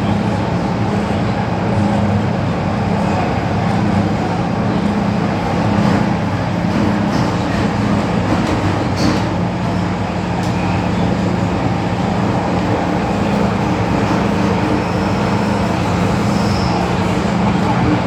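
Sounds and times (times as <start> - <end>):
metro car rumble: 0.0 - 18.0.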